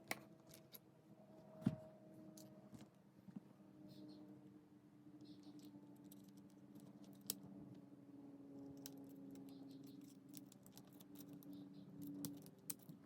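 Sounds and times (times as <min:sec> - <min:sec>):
small parts clicking and tapping: 0:05.2 - 0:07.5, 0:08.6 - 0:13.0.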